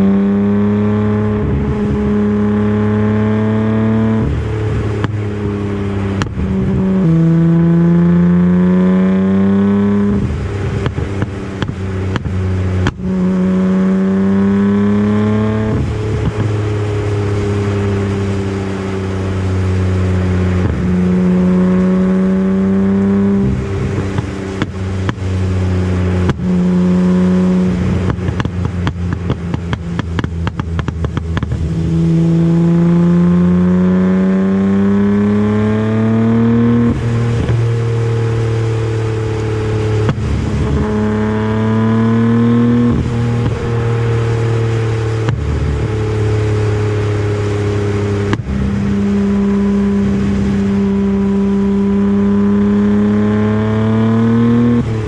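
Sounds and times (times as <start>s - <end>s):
car engine accelerating hard: 0.0s - 55.0s
exhaust pops and crackles: 4.0s - 7.2s, 9.6s - 14.0s, 15.0s - 19.8s, 20.4s - 32.6s, 36.4s - 55.0s.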